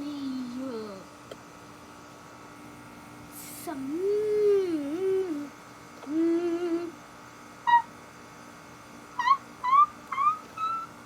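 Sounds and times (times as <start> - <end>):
person humming: 3.7 - 7.0.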